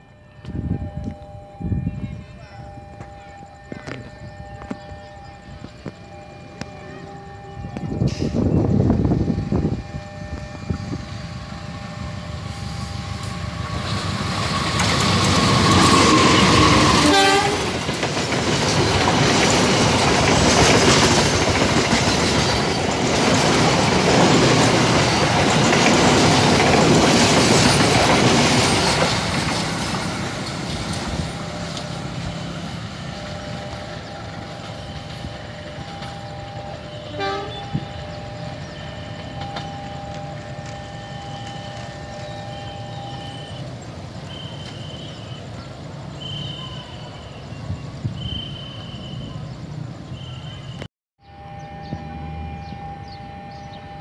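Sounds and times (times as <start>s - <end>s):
passenger train passing: 0.0s - 54.0s
locomotive horn: 15.4s - 17.8s, 31.2s - 43.6s.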